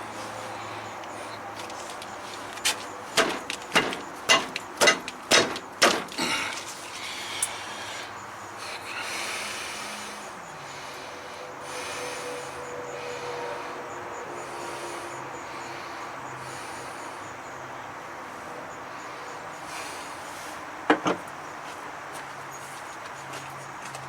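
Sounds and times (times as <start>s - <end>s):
sharp bangs: 3.2s - 6.2s.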